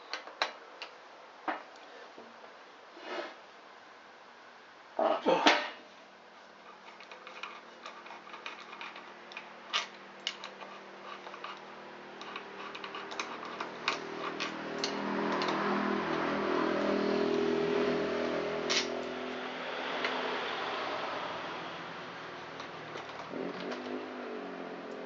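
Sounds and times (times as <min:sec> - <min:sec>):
engine-like hum: 0:06.9 - 0:25.0
metal bolts clicking and clinking: 0:12.2 - 0:16.3.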